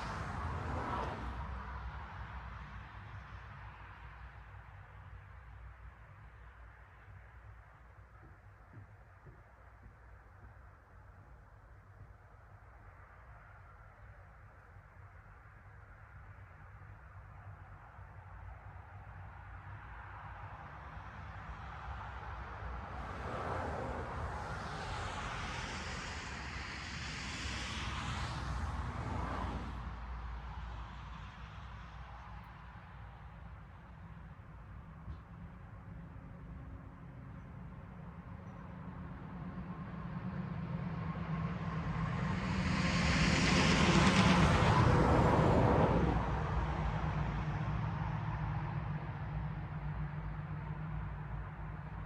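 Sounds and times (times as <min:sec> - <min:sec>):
vehicle passing by: 0:22.6 - 0:32.4, 0:38.7 - 0:52.0.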